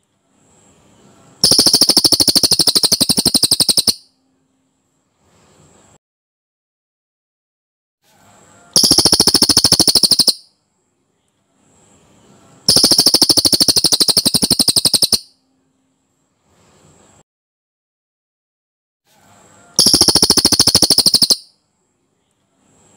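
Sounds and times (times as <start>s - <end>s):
bird singing fast trills: 1.4s - 4.1s, 8.8s - 10.5s, 12.7s - 15.3s, 19.8s - 21.5s.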